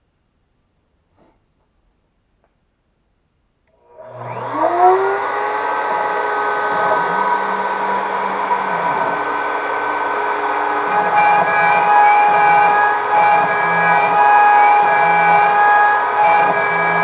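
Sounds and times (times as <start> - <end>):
router spindle motor whine: 3.8 - 17.0.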